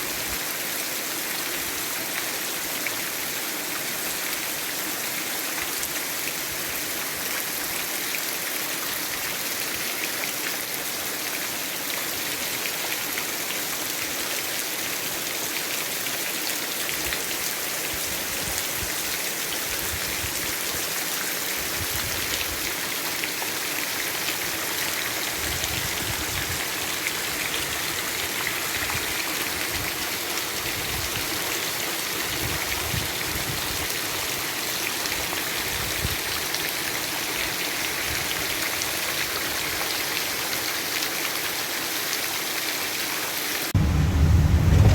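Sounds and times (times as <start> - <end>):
heavy rain falling: 0.2 - 44.9
low rumbles: 43.8 - 44.9.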